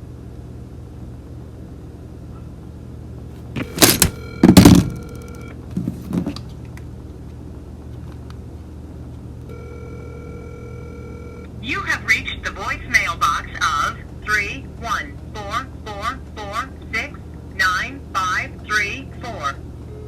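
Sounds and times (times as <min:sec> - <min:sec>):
low hum: 0:00.0 - 0:05.8, 0:08.8 - 0:20.0
phone handling thumps: 0:03.4 - 0:06.4.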